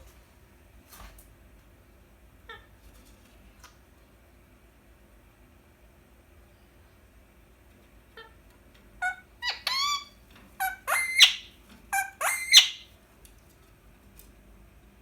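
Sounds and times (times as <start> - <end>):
parakeet squawking: 9.0 - 12.9.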